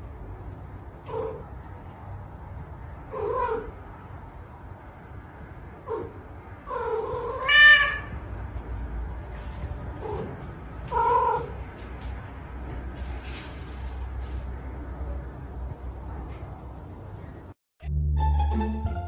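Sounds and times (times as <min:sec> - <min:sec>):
cat meowing: 0:06.7 - 0:08.2, 0:10.9 - 0:11.6.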